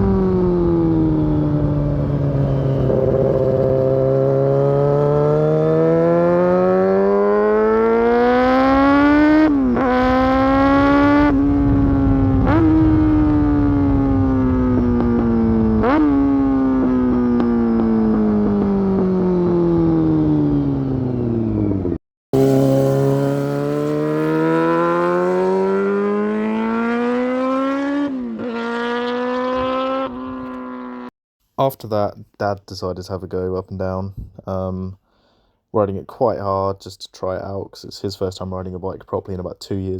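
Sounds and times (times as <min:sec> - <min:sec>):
motorcycle engine revving: 0:00.0 - 0:31.1.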